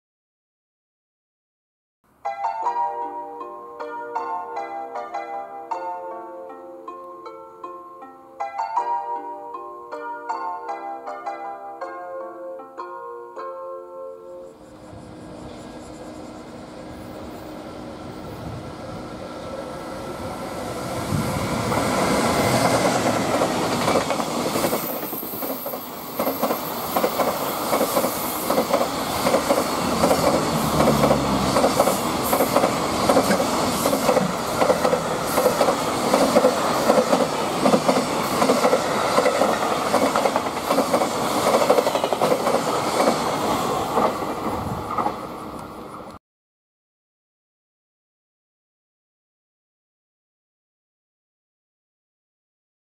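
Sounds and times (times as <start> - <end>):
electric locomotive passing: 14.3 - 46.2
wheels clickety-clack on rail joints: 21.1 - 46.1.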